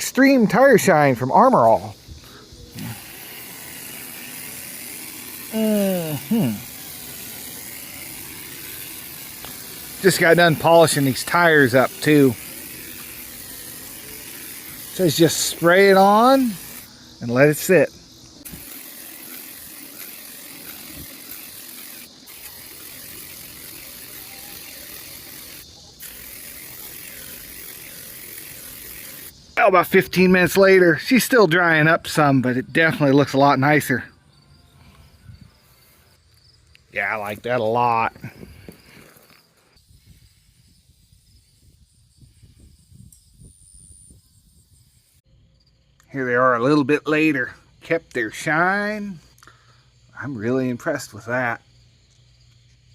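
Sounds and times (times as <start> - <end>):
insect chirring: 0.0 - 52.9
aerosol can spraying: 1.6 - 29.6.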